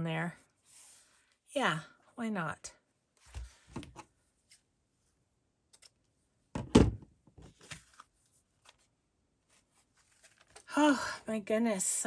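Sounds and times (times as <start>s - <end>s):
dull thump of object set down: 6.6s - 7.1s.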